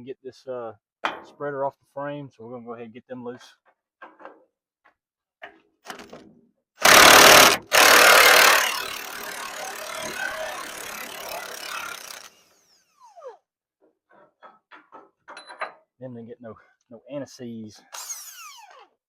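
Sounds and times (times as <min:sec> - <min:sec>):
impact wrench bursts: 0:06.8 - 0:12.9, 0:18.0 - 0:18.8.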